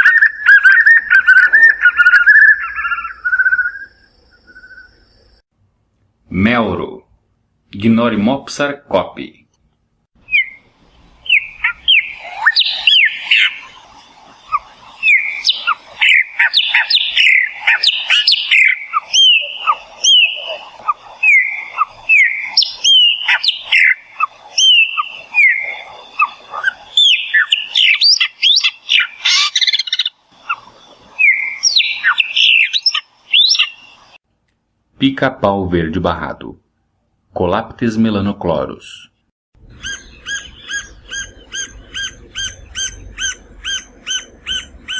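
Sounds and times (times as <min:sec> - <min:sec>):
blackbird singing: 0:00.0 - 0:05.3, 0:10.2 - 0:34.1, 0:38.9 - 0:44.9.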